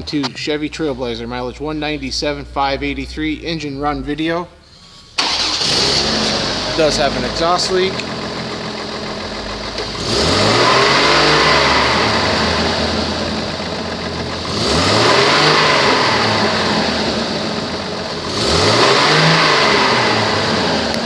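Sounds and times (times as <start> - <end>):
car engine revving: 5.2 - 21.0.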